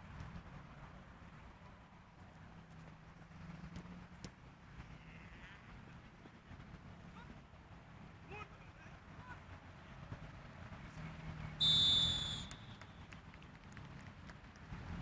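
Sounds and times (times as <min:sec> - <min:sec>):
low steady background noise: 0:00.0 - 0:15.0
referee's whistle blast: 0:11.6 - 0:12.8.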